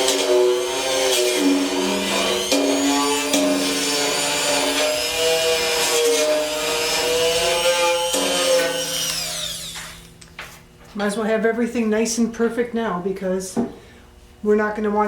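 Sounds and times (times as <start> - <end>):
rotary tool whining: 0.0 - 10.1.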